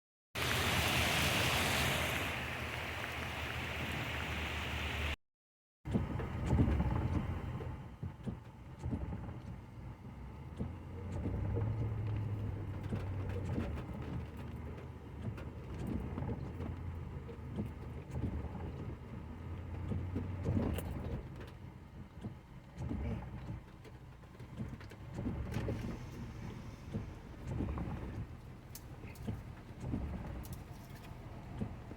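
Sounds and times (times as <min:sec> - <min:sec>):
steady rain hiss: 0:00.4 - 0:05.2.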